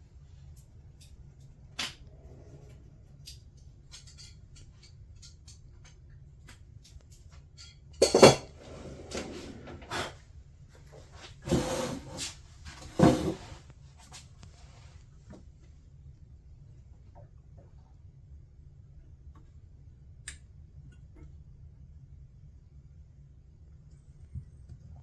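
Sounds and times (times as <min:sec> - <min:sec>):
tools clattering and scraping: 0:07.6 - 0:10.2, 0:11.0 - 0:14.2.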